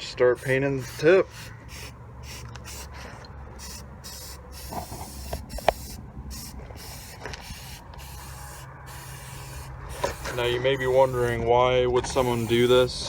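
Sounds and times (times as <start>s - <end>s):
spray can hissing: 0.4s - 3.0s, 3.6s - 11.4s, 12.1s - 13.0s.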